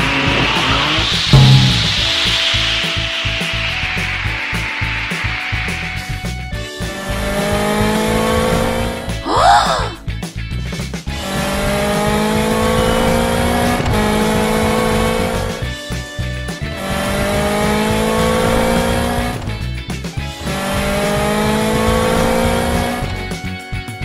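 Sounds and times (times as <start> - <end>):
background music: 1.3 - 24.0
cartoon race car engine revving: 6.9 - 10.0, 11.2 - 15.7, 16.7 - 19.6, 20.4 - 23.2.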